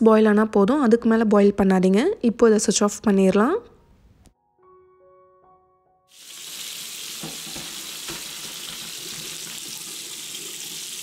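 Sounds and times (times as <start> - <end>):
faint background music: 0.0 - 6.0
water draining through a colander: 6.2 - 11.0.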